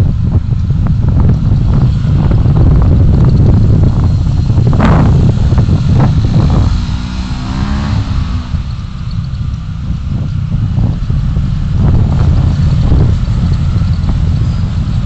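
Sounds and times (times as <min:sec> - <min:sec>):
road and wind rumble of car: 0:00.0 - 0:15.0
engine note rising and falling: 0:01.5 - 0:15.0.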